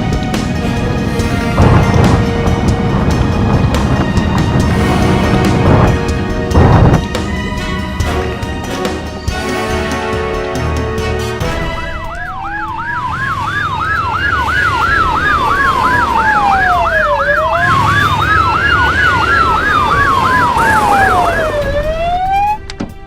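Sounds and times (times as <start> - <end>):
low rumble: 0.0 - 8.8, 11.6 - 23.0
slow rising and falling siren: 11.4 - 23.0
fast sweeping siren: 11.5 - 22.7.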